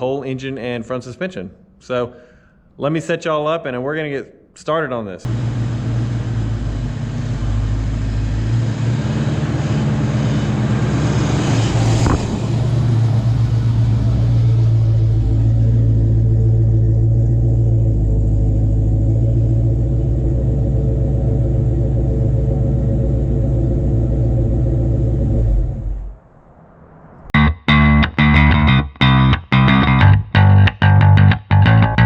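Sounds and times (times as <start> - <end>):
car engine humming: 5.3 - 27.4.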